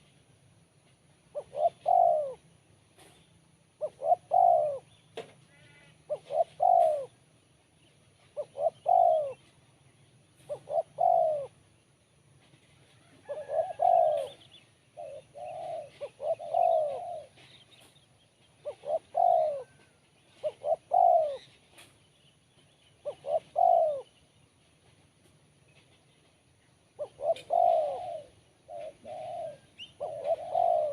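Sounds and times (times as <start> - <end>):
dove cooing: 1.2 - 7.3, 8.2 - 9.6, 10.4 - 11.8, 12.4 - 22.0, 23.0 - 24.2, 26.9 - 30.9.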